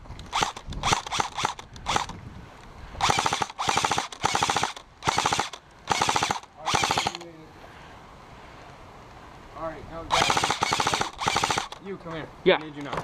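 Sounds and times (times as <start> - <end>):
airsoft rifles firing bursts: 3.0 - 7.2, 10.1 - 11.8.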